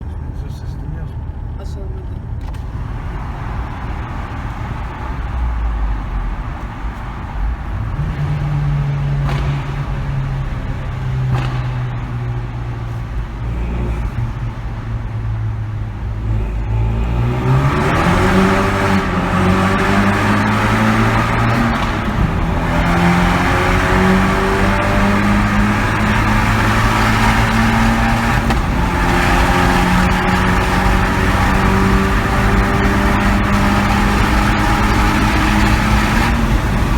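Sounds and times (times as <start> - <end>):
car exhaust accelerating in tunnel: 0.0 - 36.9.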